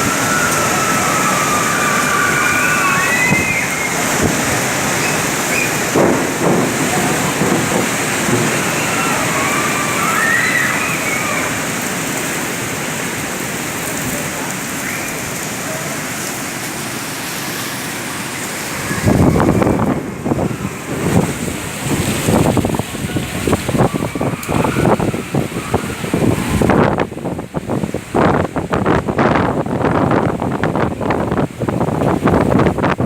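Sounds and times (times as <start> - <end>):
wind buffeting microphone: 0.0 - 15.6, 17.3 - 33.0
heavy rain: 0.0 - 33.0.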